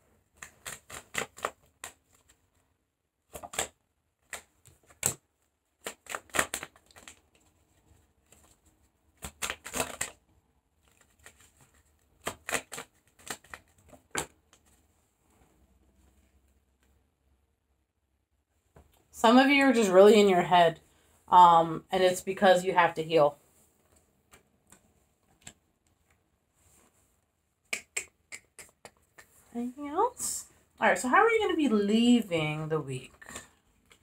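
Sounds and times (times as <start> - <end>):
cards being shuffled: 0.3 - 2.4, 3.3 - 5.2, 5.8 - 10.2, 10.8 - 14.9.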